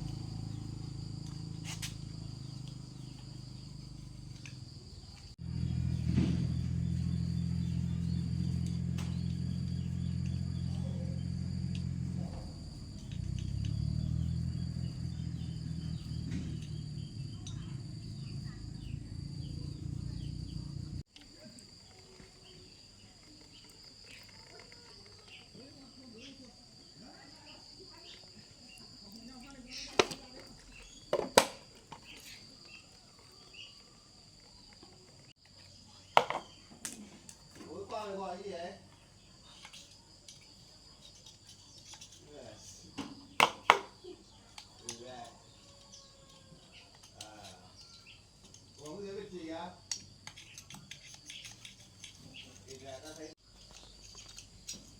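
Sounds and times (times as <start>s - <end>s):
small engine running: 0.0s - 21.0s
high insect whine: 0.0s - 54.9s
insect chirps: 0.0s - 54.9s.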